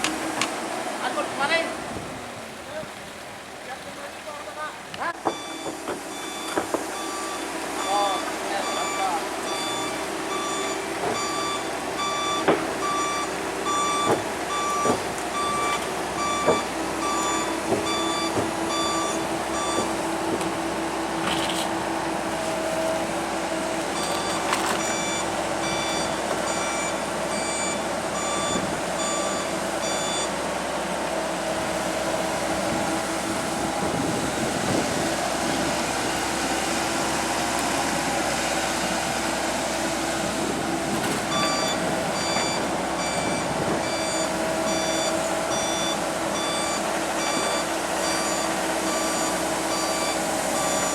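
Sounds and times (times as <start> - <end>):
excavator engine running: 4.7 - 50.9
travel alarm beeping: 5.2 - 20.0, 23.9 - 30.4, 41.3 - 50.9.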